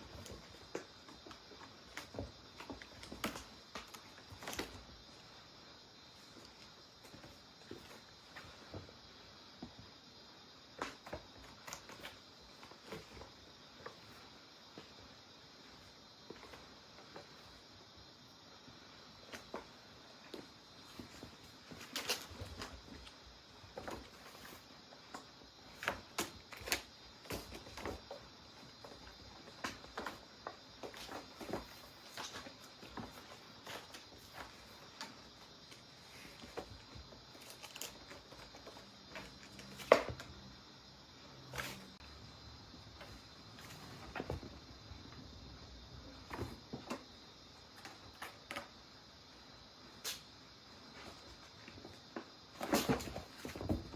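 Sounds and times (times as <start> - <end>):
cats playing knocks and scuffles: 0.0 - 53.9
faint steady hiss: 0.0 - 53.9.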